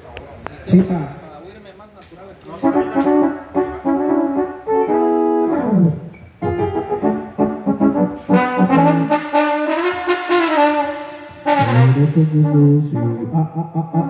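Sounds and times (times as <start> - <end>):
brass instrument notes: 2.6 - 14.0.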